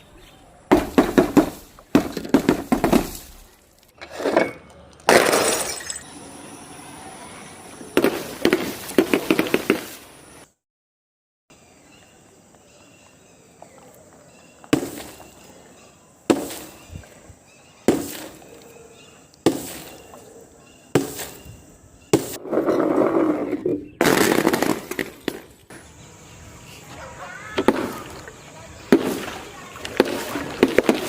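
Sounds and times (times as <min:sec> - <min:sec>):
rough crunching noise: 0:00.0 - 0:05.4, 0:21.0 - 0:31.0
sharp cracking impacts: 0:24.0 - 0:25.8, 0:28.9 - 0:31.0.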